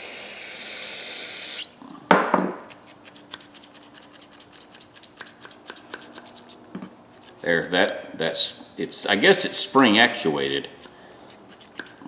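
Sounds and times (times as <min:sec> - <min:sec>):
diagonal cutters snapping and clicking: 0:02.7 - 0:06.6.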